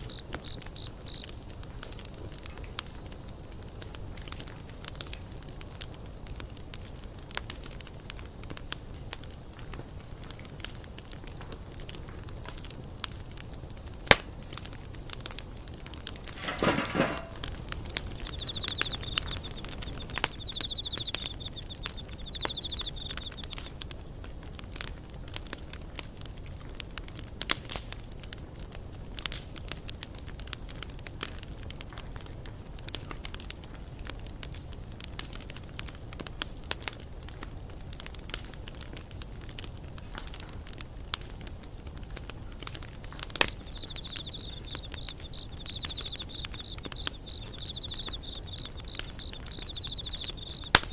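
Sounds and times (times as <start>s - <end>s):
insects trilling: 0.0s - 5.1s, 7.5s - 23.9s, 43.2s - 50.9s
campfire crackling and popping: 0.0s - 50.9s.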